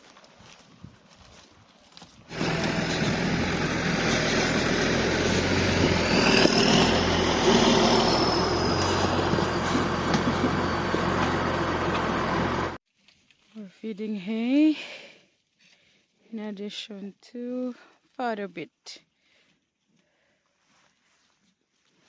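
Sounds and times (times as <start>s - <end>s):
vehicle engine rumbling: 2.2s - 12.8s.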